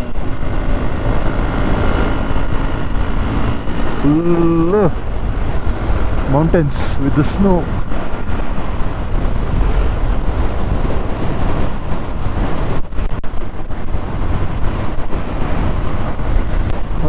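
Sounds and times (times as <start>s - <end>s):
low motorcycle rumble: 0.0s - 17.0s
wind buffeting microphone: 0.0s - 17.0s.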